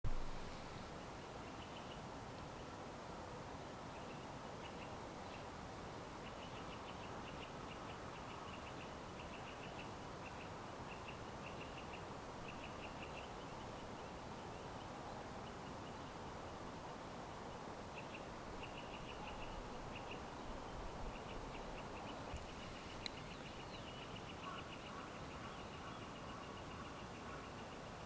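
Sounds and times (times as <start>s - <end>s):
steady background hiss: 0.1s - 28.0s
small birds chirping: 17.4s - 28.0s.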